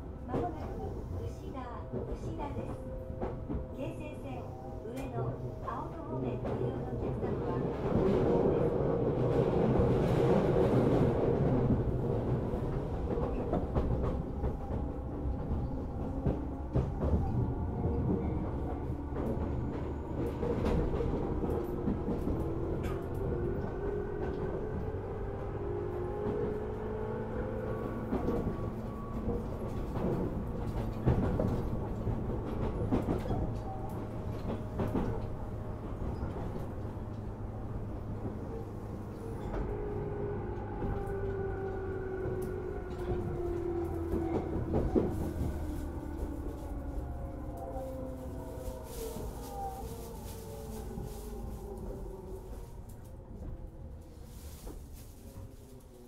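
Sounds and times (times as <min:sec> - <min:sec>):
train rumble: 0:00.0 - 0:56.0.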